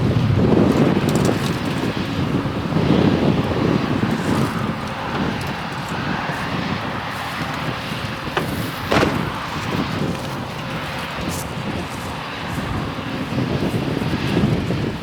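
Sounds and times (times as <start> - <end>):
vehicle rumble: 0.0 - 12.8
wind noise on microphone: 0.0 - 15.0
sharp knocks: 7.4 - 10.4.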